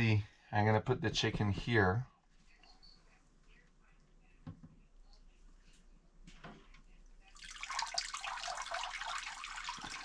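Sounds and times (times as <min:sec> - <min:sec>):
water pouring into a basin: 0:07.3 - 0:10.0.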